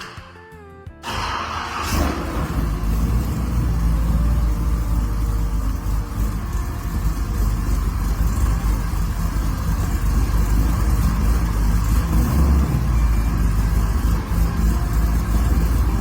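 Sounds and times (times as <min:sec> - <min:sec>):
car engine running: 0:01.0 - 0:16.0.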